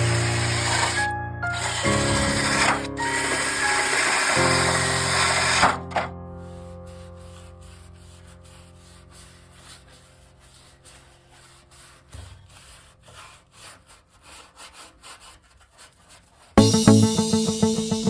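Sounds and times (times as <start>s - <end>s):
faint scraping strokes: 6.4s - 16.6s.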